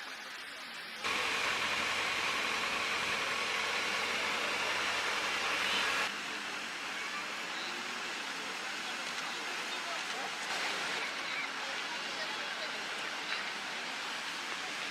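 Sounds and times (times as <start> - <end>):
sports car driving: 1.0 - 6.1.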